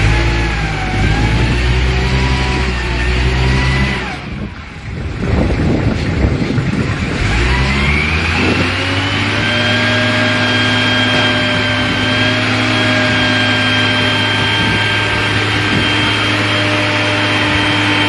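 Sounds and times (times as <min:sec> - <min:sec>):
machine motor whine: 0:07.2 - 0:18.0.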